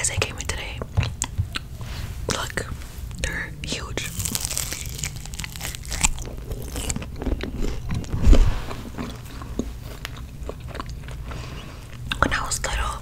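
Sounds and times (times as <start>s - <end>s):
crunchy chewing: 4.0s - 12.4s.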